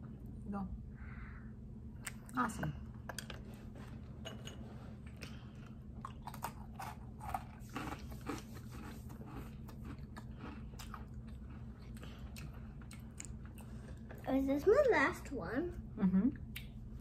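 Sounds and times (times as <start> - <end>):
low steady hum: 0.0 - 17.0
people crunching sweets: 5.2 - 14.2.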